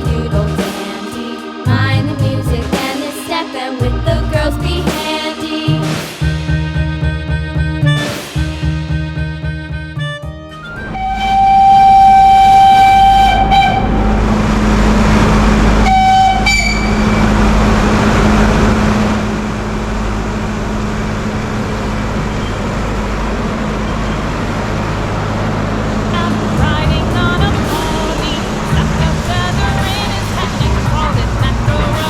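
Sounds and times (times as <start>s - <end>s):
locomotive rumble: 0.0s - 0.7s, 1.6s - 2.8s, 3.8s - 5.0s, 5.7s - 32.0s
train horn blast: 10.7s - 19.6s.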